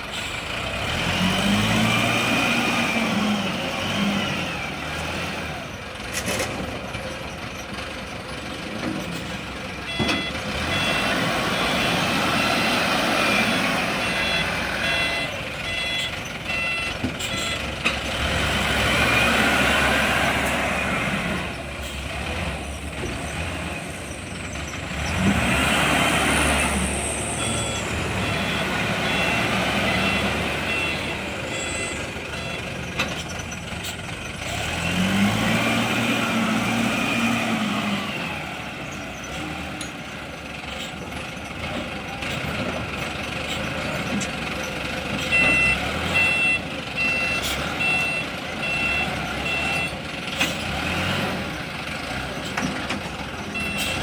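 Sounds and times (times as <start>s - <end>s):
diesel engine revving: 0.0s - 54.0s
reversing beeper: 9.8s - 17.8s, 22.6s - 33.6s, 45.2s - 50.0s, 53.4s - 54.0s.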